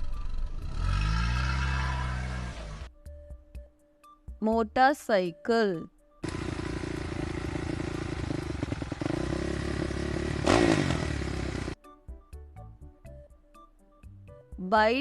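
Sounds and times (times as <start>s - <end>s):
motorcycle engine revving: 0.0s - 2.9s, 6.2s - 11.8s.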